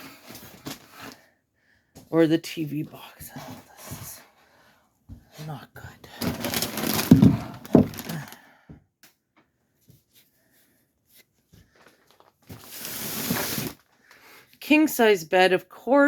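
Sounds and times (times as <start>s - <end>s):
rustling handling noise: 6.1s - 8.4s, 11.1s - 14.1s
dull thumps: 6.2s - 8.4s.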